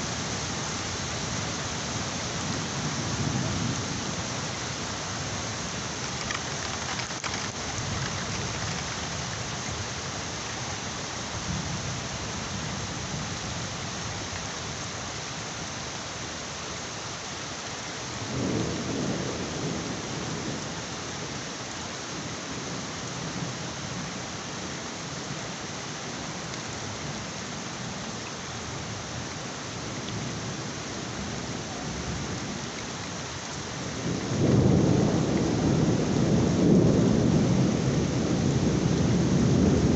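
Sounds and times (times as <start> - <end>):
heavy rain falling: 0.0 - 39.9
thunder rumbling: 34.0 - 39.9.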